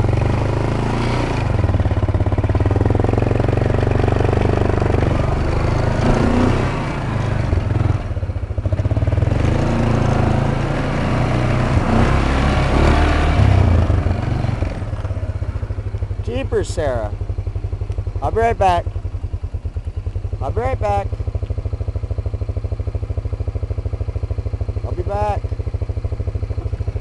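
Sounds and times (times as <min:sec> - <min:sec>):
atv engine running: 0:00.0 - 0:27.0.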